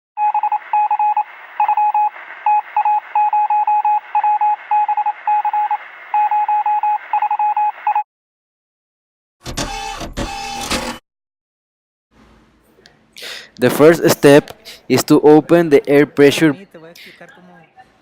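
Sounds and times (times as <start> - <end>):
electronic tone beeping: 0.2 - 8.0.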